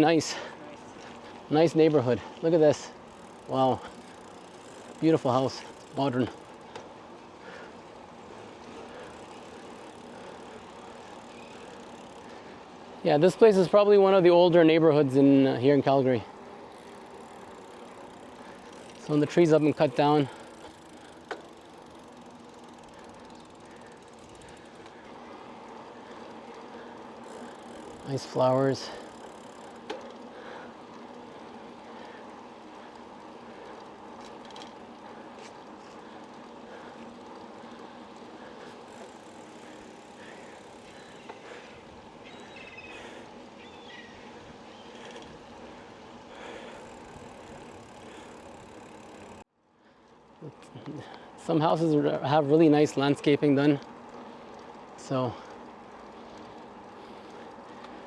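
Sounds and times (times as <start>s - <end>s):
bicycle tyre and wind noise: 0.0s - 58.0s
freewheel ticking: 2.5s - 6.9s, 8.4s - 12.6s, 15.8s - 42.3s, 45.0s - 49.4s
bicycle click: 3.0s - 7.7s, 8.3s - 12.7s, 16.3s - 49.4s, 53.8s - 58.0s.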